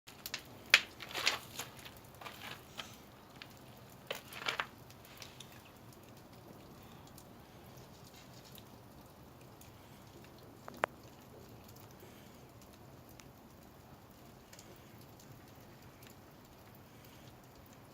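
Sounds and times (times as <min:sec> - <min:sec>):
sharp wooden knocks and cracks: 0:00.1 - 0:04.7
faint steady hiss: 0:00.1 - 0:17.9.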